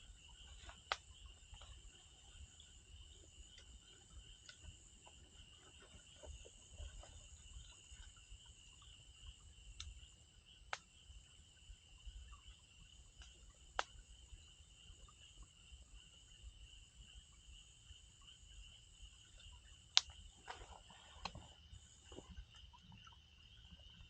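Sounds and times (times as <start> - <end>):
insects chirring: 0.0 - 24.0
burning firewood popping: 0.5 - 1.9.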